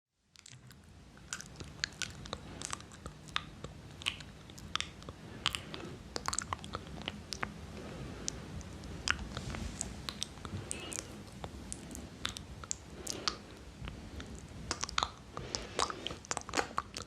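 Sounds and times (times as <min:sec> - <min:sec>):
wet mouth clicks and smacks: 0:00.3 - 0:07.6, 0:10.0 - 0:11.1, 0:11.7 - 0:13.4, 0:14.7 - 0:17.0.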